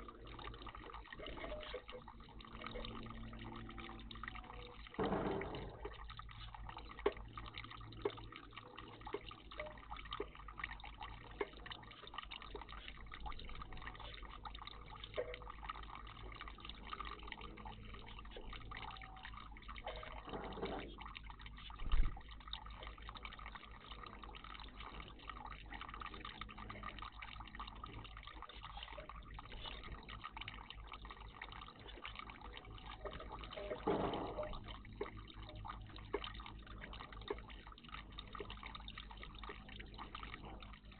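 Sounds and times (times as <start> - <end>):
water splashes: 0.0 - 40.9
water trickling and dripping: 0.0 - 40.9
low thump: 5.0 - 5.8.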